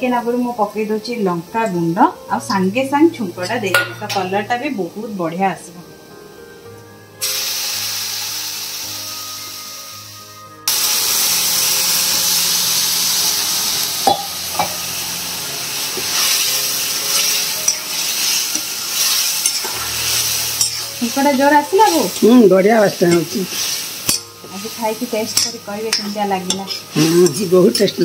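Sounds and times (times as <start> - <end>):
oil sizzling in a wok: 0.0 - 28.0.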